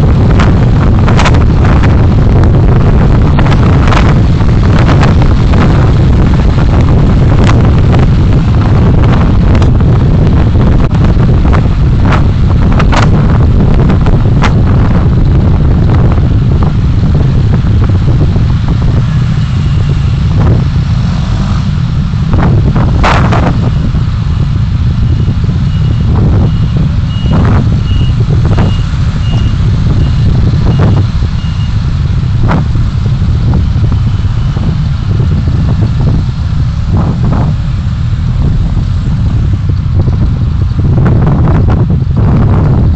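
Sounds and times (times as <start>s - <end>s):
road and engine rumble: 0.0s - 42.9s
short high beeps: 25.7s - 30.2s.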